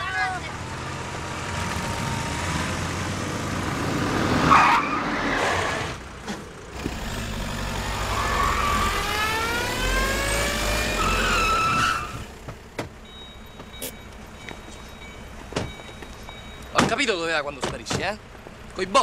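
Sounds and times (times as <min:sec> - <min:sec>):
car engines accelerating: 0:00.0 - 0:13.0
car engine revving up: 0:06.8 - 0:12.3.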